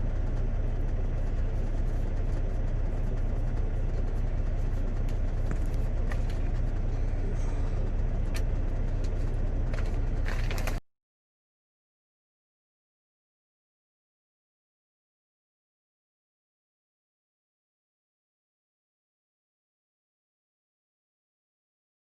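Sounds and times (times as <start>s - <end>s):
truck engine idling: 0.0s - 10.8s.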